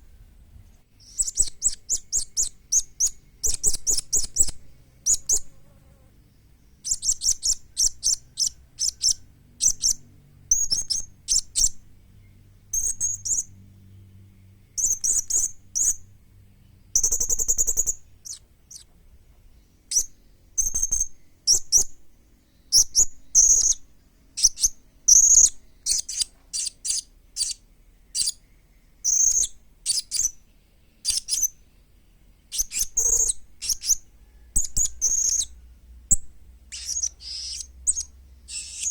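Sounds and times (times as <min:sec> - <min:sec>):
parrot high-pitched chirps: 0:01.0 - 0:05.4, 0:17.0 - 0:18.9, 0:24.4 - 0:27.6, 0:28.2 - 0:28.4, 0:29.0 - 0:30.4, 0:31.0 - 0:31.6, 0:32.5 - 0:34.0, 0:34.6 - 0:38.9.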